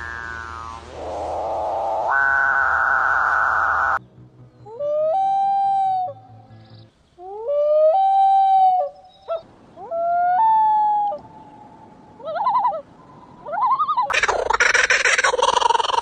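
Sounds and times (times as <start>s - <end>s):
bird wailing calls: 0.0s - 4.0s, 7.2s - 16.0s.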